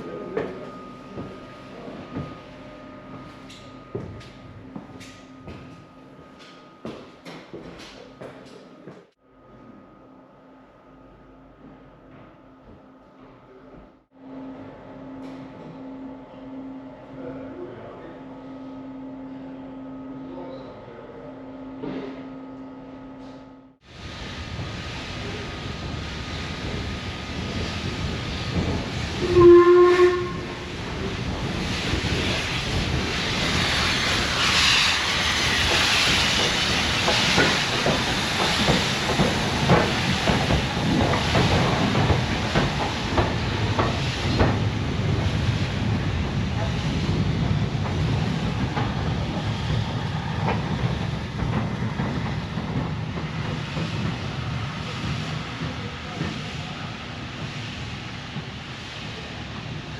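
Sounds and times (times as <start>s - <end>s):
hiss of steam: 23.9s - 50.9s
steam locomotive whistle: 29.2s - 30.7s.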